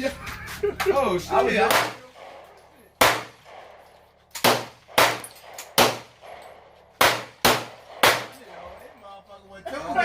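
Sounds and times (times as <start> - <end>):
gunshots: 1.5 - 9.0.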